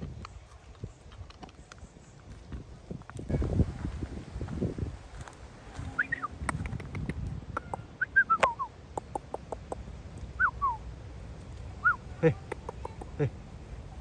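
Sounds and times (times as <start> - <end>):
sharp clicks: 8.3 - 9.8.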